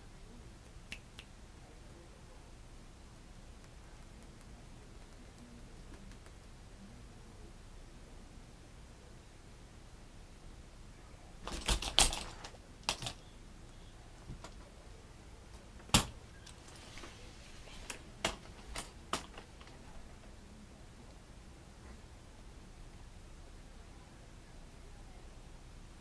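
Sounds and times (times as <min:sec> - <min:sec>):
sharp clicks and knocks: 0:15.8 - 0:16.8, 0:17.8 - 0:20.3.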